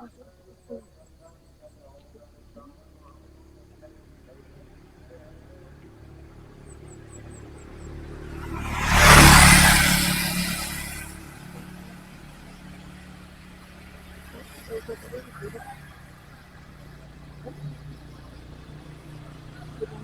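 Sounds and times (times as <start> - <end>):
vehicle passing by: 4.2 - 20.0.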